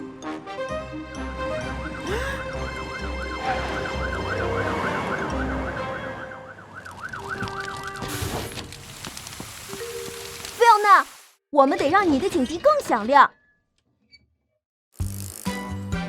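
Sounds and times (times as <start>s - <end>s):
background music: 0.0s - 6.8s, 15.0s - 16.0s
cartoon siren warbling: 3.0s - 8.1s.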